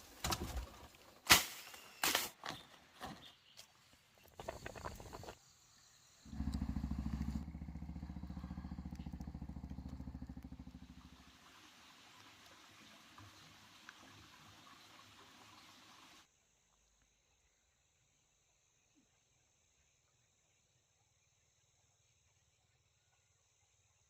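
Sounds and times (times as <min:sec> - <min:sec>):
small engine running: 0:06.2 - 0:11.4.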